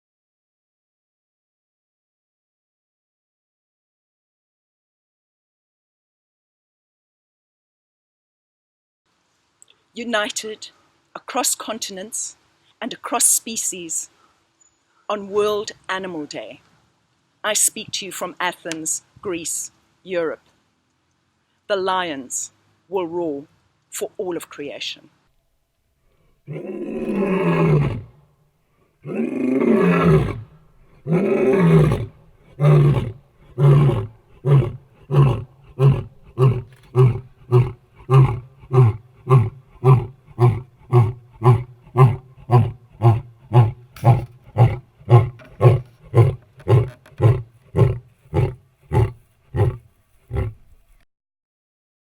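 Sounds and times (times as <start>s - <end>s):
lion grunting calls: 26.4s - 28.2s, 29.0s - 50.8s
lion roaring: 26.4s - 28.2s, 29.0s - 50.8s.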